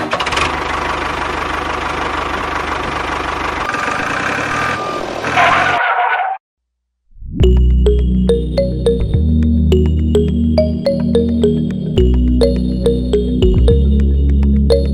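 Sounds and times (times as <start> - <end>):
music: 7.4 - 14.9.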